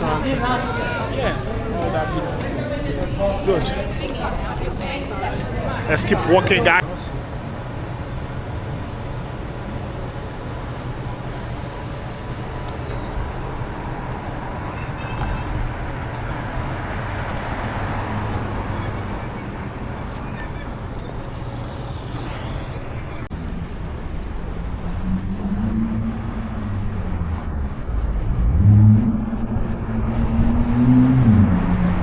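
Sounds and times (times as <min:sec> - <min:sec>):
vehicle passing: 0:00.0 - 0:07.1, 0:24.8 - 0:32.0
traffic rumble: 0:00.0 - 0:32.0.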